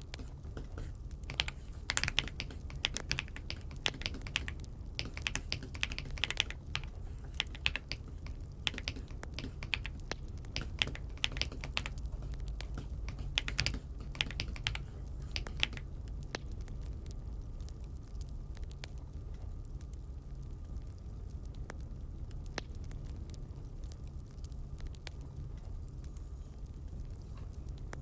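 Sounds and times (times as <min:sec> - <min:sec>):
steady low hum: 0:00.0 - 0:28.0
mechanical keyboard key clicks: 0:00.2 - 0:15.9.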